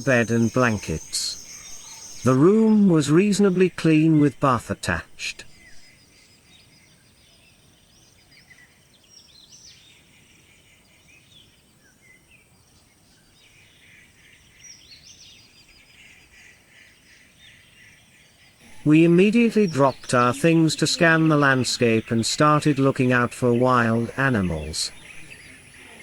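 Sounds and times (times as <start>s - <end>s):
low background hiss: 0.0s - 5.9s, 18.6s - 26.0s
rising and falling bird calls: 0.0s - 5.9s, 18.6s - 26.0s
bird chirps: 0.0s - 7.0s, 18.6s - 26.0s.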